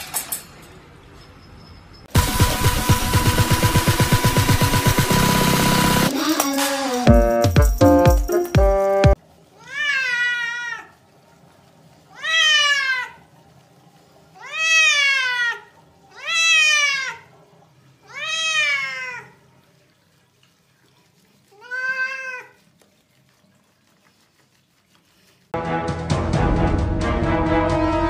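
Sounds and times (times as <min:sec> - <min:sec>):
cat meowing: 0:09.6 - 0:10.9, 0:14.4 - 0:17.3, 0:18.0 - 0:19.4, 0:21.6 - 0:22.6.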